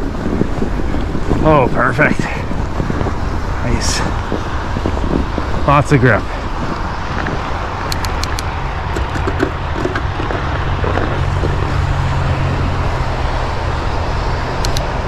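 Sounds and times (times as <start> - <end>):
bike tyres rumbling over snow: 0.0 - 15.0
wind on microphone: 0.0 - 15.0
light ticks: 14.6 - 14.9.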